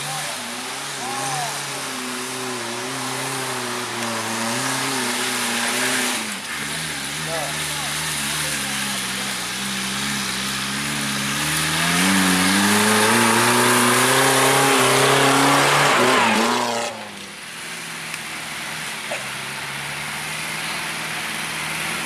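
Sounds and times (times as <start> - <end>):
vehicle engine revving: 0.0 - 22.0.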